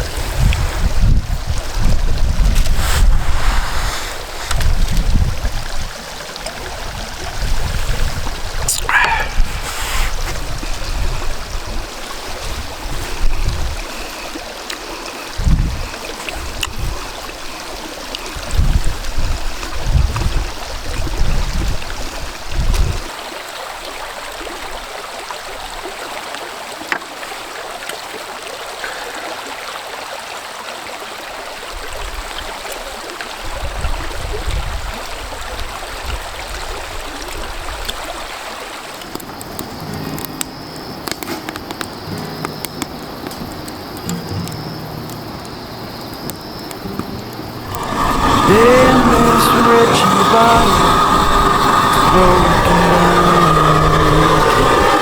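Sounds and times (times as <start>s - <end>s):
gusty wind buffeting microphone: 0.0s - 14.1s, 15.3s - 17.2s, 18.4s - 23.1s, 45.5s - 55.0s.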